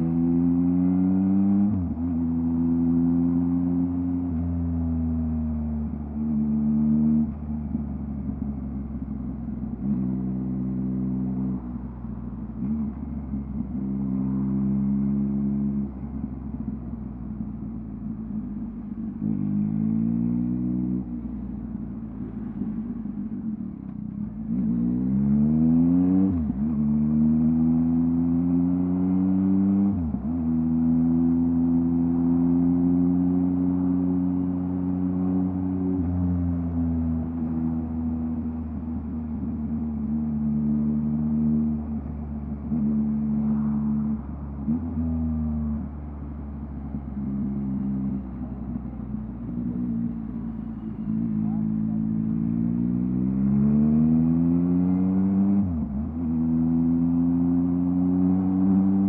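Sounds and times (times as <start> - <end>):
motorcycle engine revving: 46.4 - 59.0.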